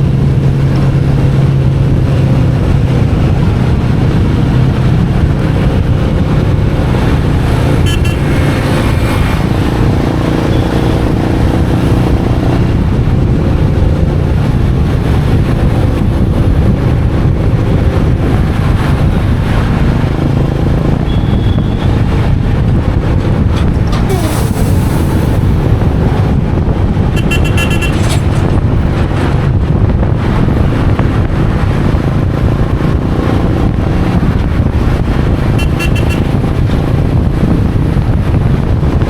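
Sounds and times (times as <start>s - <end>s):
road and wind noise: 0.0s - 39.0s.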